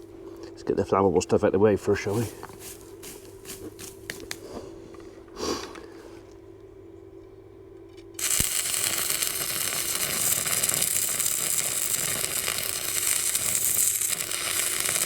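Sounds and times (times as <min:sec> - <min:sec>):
welding arc crackling: 0:08.2 - 0:15.0.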